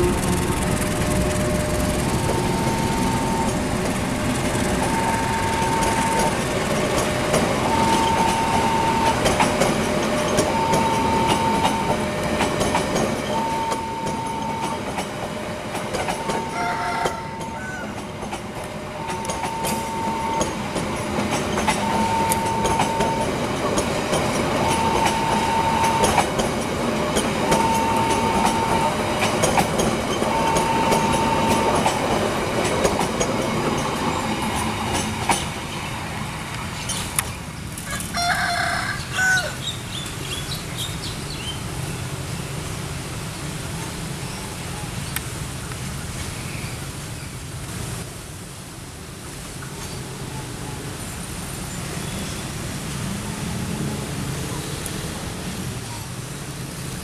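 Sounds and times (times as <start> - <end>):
train wheels clattering on rail joints: 0.0 - 38.1
warning beep: 0.6 - 3.8, 4.8 - 6.5, 7.6 - 9.4, 10.3 - 12.0.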